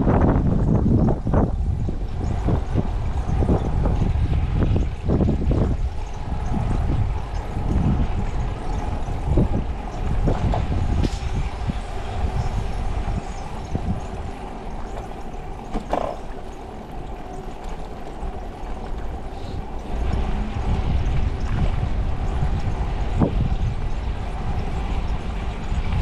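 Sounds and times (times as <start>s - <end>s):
bicycle road rumble: 0.0s - 26.0s
wind buffeting microphone: 0.0s - 26.0s
short knocks: 15.0s - 19.8s.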